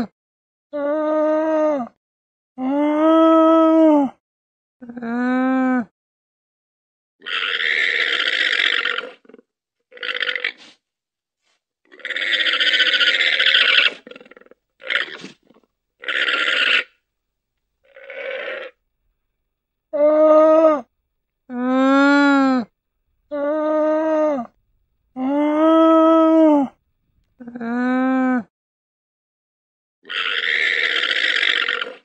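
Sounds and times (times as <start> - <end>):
llama raspy gurgling calls: 7.2 - 10.8, 11.9 - 17.0, 17.8 - 18.8, 30.1 - 32.0.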